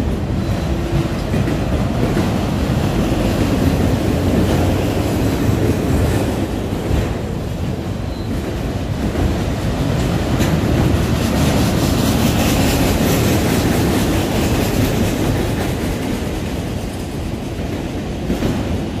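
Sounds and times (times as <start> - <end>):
steel wheels rumbling on rails: 0.0 - 19.0.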